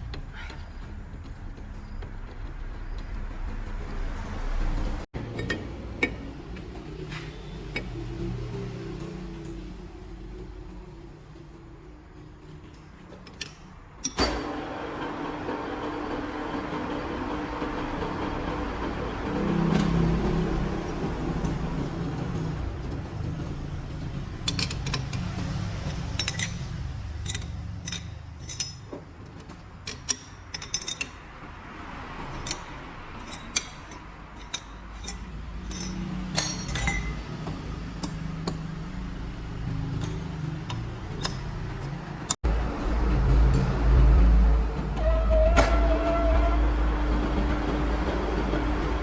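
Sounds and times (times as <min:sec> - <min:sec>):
metal tools clinking: 0:24.4 - 0:38.7, 0:39.6 - 0:42.4
low mechanical rumble: 0:32.2 - 0:49.0.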